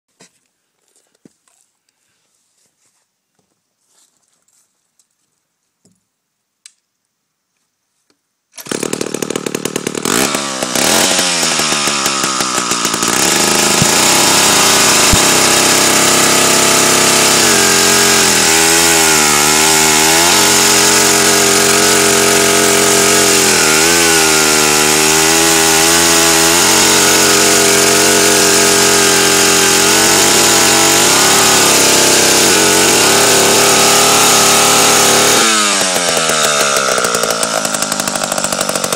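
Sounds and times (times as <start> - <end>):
chainsaw engine running: 8.6 - 38.9.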